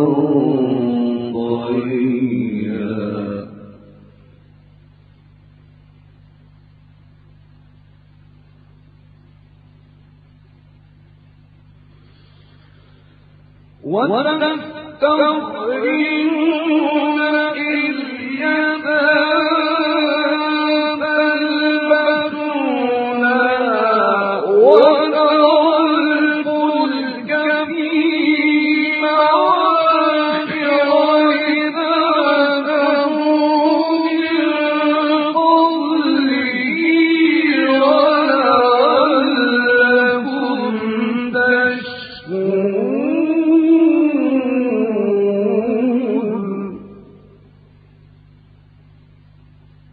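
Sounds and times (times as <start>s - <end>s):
man chanting melodically: 0.0s - 4.2s, 13.8s - 47.4s.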